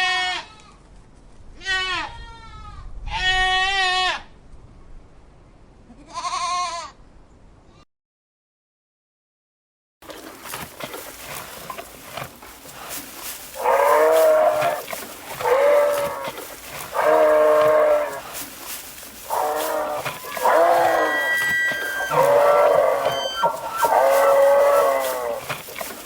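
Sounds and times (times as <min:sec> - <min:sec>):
cattle mooing: 0:10.5 - 0:26.0.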